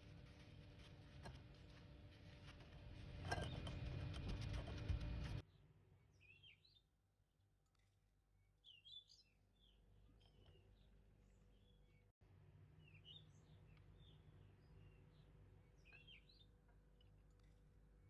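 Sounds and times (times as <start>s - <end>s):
birds twittering: 8.6s - 12.1s, 12.8s - 17.6s.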